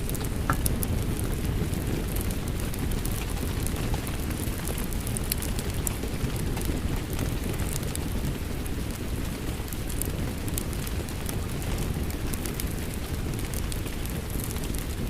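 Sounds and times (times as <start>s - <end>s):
fireplace crackling: 0.0s - 15.0s
steady rain: 0.0s - 15.0s.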